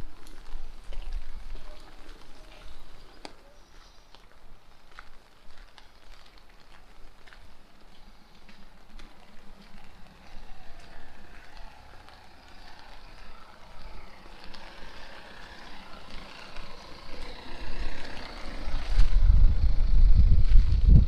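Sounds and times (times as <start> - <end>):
rainy street hiss: 0.0 - 19.2
wind buffeting microphone: 7.8 - 21.0.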